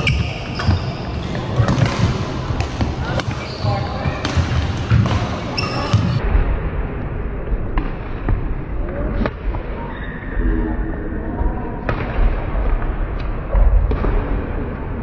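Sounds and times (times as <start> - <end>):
sports hall din: 0.0 - 15.0
rackets striking shuttlecock: 0.1 - 3.5, 4.2 - 6.2.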